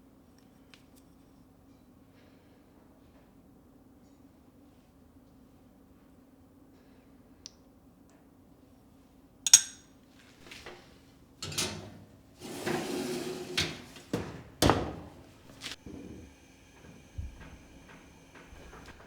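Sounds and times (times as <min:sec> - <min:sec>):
dishes clinking: 0:09.5 - 0:10.8, 0:11.4 - 0:16.2
dishes scraping: 0:10.3 - 0:19.0
dishes knocking and clattering: 0:11.4 - 0:19.0.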